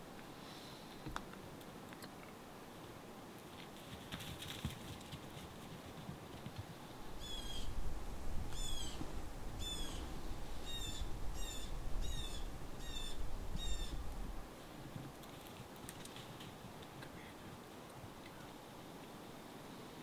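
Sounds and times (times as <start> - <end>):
bird calling: 7.2 - 7.8, 8.5 - 9.0, 9.6 - 14.0.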